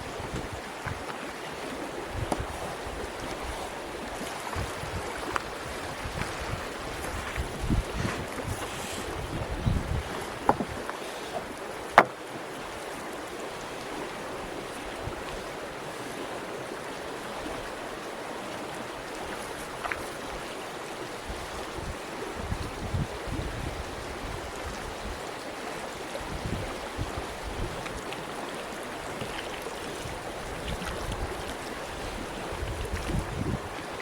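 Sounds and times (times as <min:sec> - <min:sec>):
wind rumbling on microphone: 0:00.0 - 0:12.1, 0:14.3 - 0:15.6, 0:21.1 - 0:28.2, 0:29.0 - 0:34.0
rushing water noise: 0:00.0 - 0:34.0.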